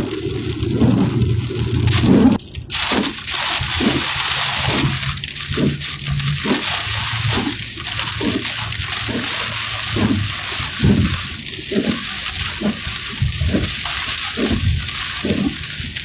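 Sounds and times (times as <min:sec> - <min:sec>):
low steady hum: 0:00.0 - 0:02.9
heavy rain hitting a vehicle: 0:00.0 - 0:16.0.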